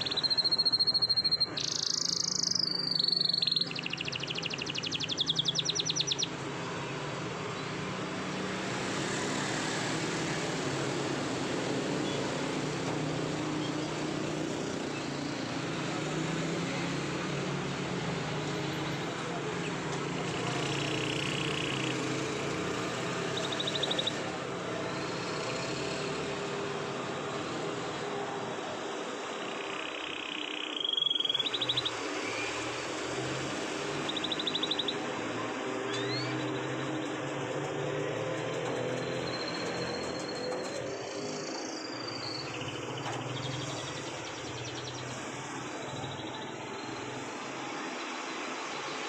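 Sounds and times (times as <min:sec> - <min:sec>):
canary trilling: 0:00.0 - 0:06.3, 0:20.5 - 0:24.3, 0:29.4 - 0:35.0, 0:35.9 - 0:37.0
canary singing trills: 0:00.0 - 0:08.8, 0:10.0 - 0:47.4.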